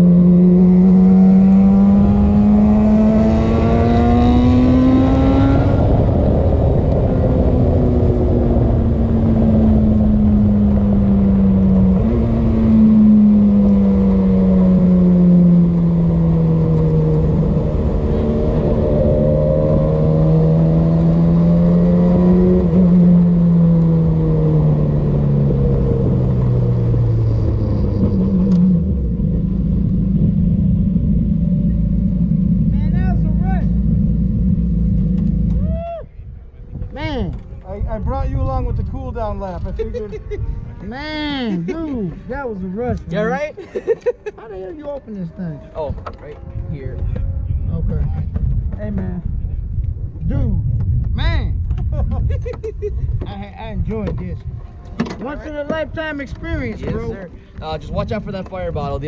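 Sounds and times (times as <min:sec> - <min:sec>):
race car engine running hard: 0:00.0 - 0:35.6.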